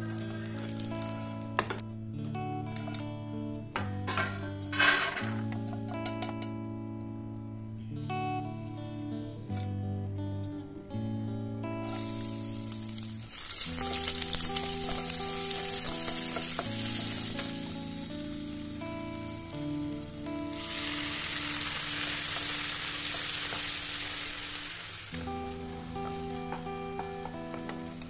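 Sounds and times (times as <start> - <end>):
onions sizzling in oil: 0.0 - 1.5, 11.8 - 28.0.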